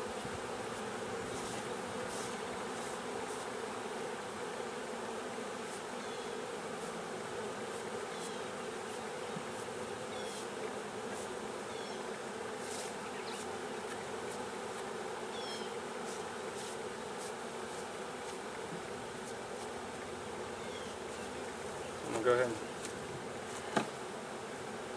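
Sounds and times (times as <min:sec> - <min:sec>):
bees buzzing: 0:00.0 - 0:24.9.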